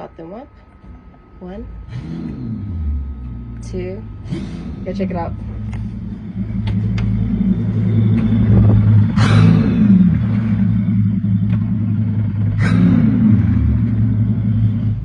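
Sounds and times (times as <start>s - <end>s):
boat engines idling: 0.0s - 15.0s
sharp engine bursts: 1.4s - 15.0s.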